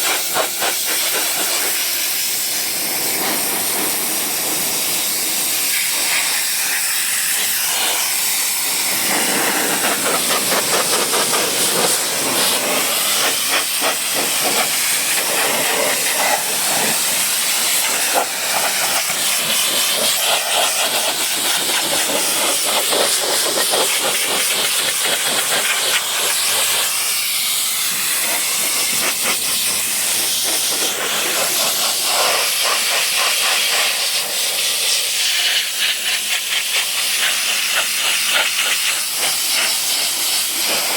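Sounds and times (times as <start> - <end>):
pressure washer spraying water: 0.0 - 40.9.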